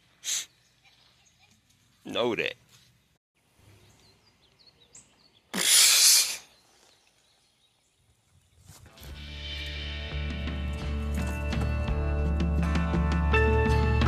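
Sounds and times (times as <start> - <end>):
music with heavy bass: 9.1 - 14.0.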